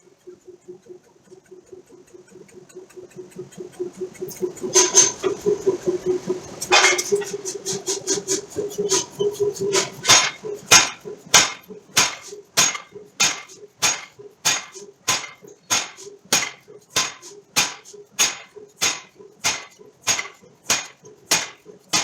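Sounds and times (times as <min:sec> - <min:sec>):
forging hammer striking steel: 0:09.7 - 0:22.0.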